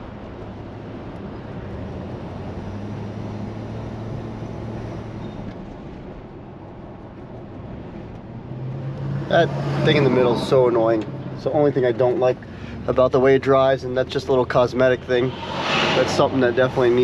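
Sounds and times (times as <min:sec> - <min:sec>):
car engine hum: 0:00.0 - 0:17.0
tyre and road noise: 0:00.0 - 0:17.0.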